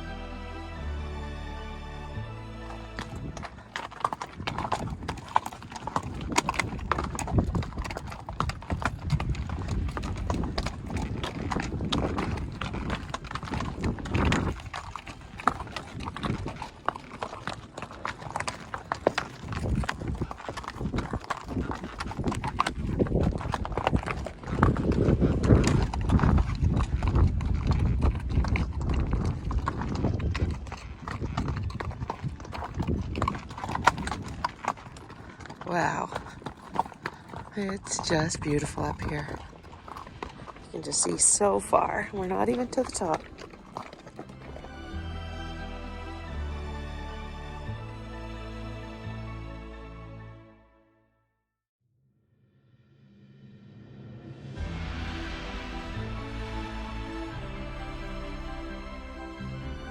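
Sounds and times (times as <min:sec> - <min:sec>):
horse hooves on stone: 0:02.4 - 0:47.8
steady low rumble: 0:22.0 - 0:33.3, 0:52.9 - 0:59.9.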